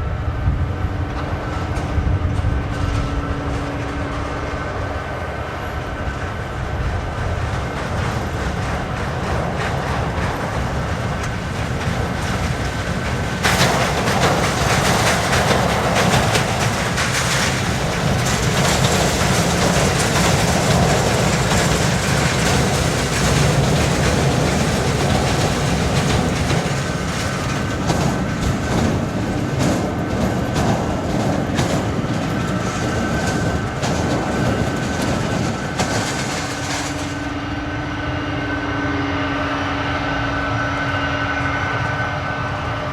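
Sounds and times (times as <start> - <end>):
jet engine roar: 0.0 - 42.9.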